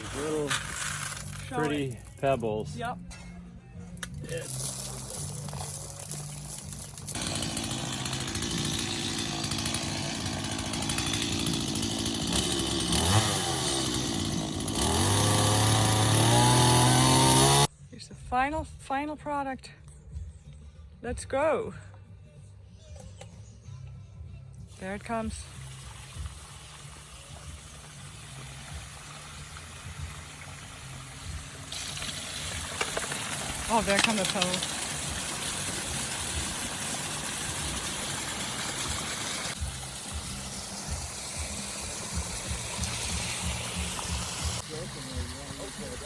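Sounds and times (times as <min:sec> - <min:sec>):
small engine tool revving: 0:06.0 - 0:17.7, 0:30.0 - 0:46.0.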